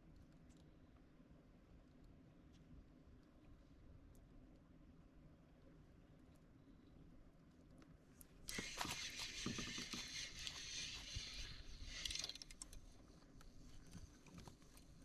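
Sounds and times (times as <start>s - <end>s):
fishing reel ratchet clicking: 8.5s - 12.9s.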